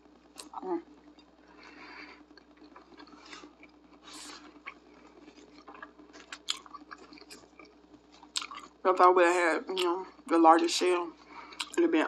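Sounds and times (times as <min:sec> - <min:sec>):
wet chewing sounds: 0:01.1 - 0:08.8, 0:11.2 - 0:11.8.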